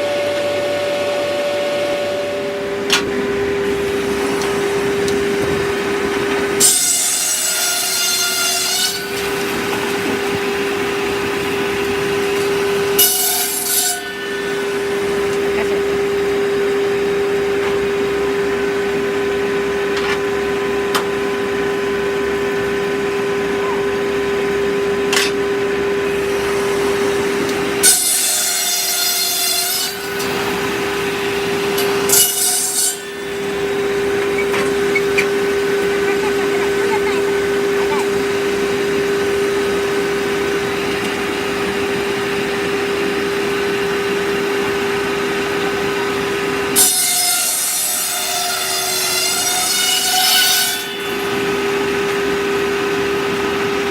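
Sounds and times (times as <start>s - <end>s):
circular sawmill humming: 0.0s - 53.9s
saw blade cutting wood: 6.5s - 10.3s, 12.2s - 16.0s, 26.2s - 38.6s, 46.7s - 51.7s.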